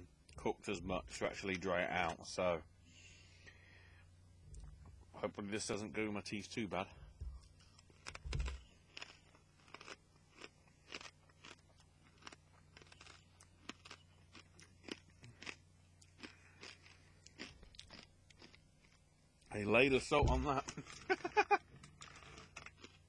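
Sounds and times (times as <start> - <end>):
low steady hum: 0.0 - 23.0
person chewing crunchy snack: 7.3 - 19.3, 20.5 - 23.0.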